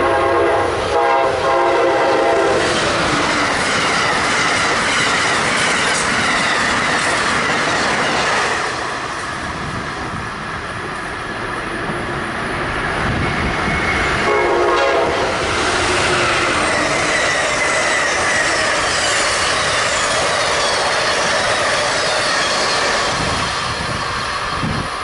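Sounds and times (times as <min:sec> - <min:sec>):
train horn blast: 0:00.0 - 0:02.8, 0:14.2 - 0:19.2
train wheels roaring on rail: 0:00.0 - 0:25.0.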